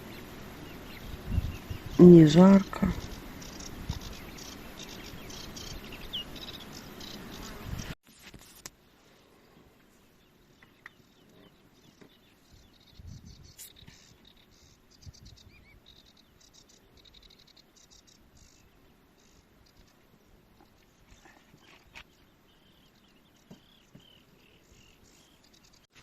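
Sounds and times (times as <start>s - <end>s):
insects chirping in buzzy bursts: 0.0s - 8.0s, 12.4s - 20.4s.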